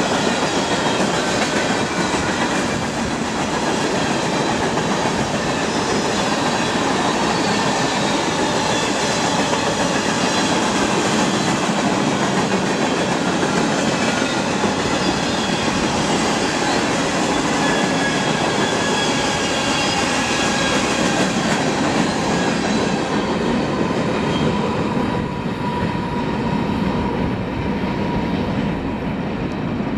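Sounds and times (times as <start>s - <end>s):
freight train cars rumbling and rattling: 0.0s - 29.9s
high wheel squeal: 5.3s - 10.7s, 14.2s - 23.2s.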